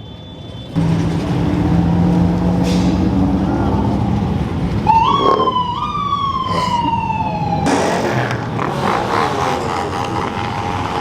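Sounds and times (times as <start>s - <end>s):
car engines rumbling: 0.7s - 11.0s
siren whoop: 4.8s - 7.8s.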